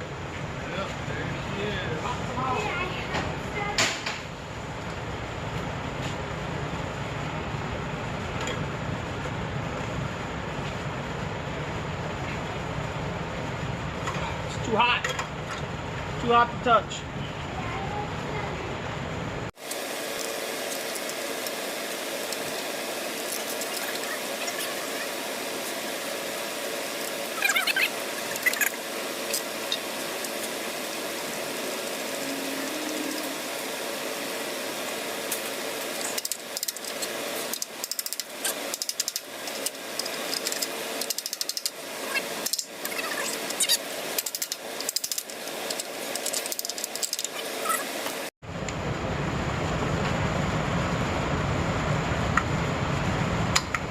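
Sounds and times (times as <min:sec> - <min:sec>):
steady hum: 0:00.0 - 0:53.9
hand tools ratcheting on metal: 0:37.5 - 0:41.8.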